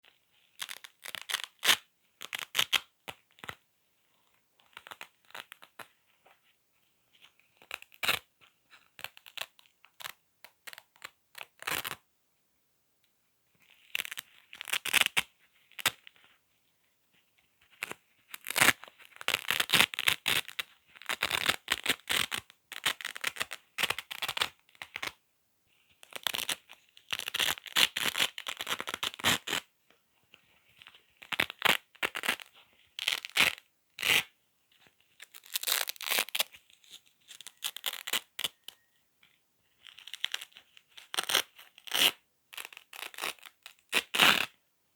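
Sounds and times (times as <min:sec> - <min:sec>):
velcro ripping: 0:00.5 - 0:03.6, 0:04.6 - 0:05.9, 0:07.6 - 0:08.3, 0:08.9 - 0:12.0, 0:13.6 - 0:16.2, 0:17.8 - 0:25.2, 0:26.0 - 0:29.7, 0:31.2 - 0:34.3, 0:35.2 - 0:38.9, 0:39.8 - 0:44.6.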